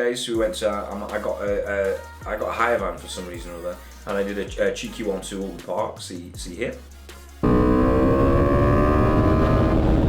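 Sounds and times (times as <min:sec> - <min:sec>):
motorcycle engine at high revs: 0:07.4 - 0:10.0.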